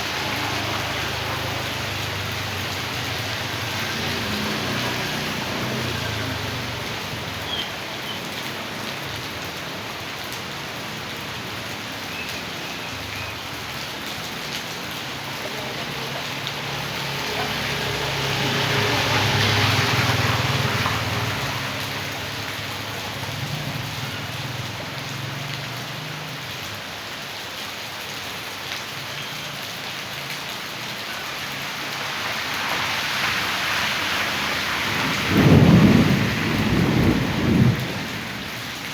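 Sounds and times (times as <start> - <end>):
rain pouring: 0.0 - 38.9.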